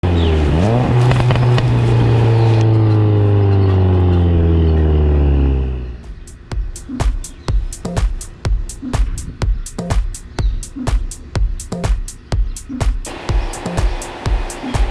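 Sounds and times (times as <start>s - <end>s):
car engine revving: 0.0s - 7.0s
exhaust crackles: 0.0s - 14.9s.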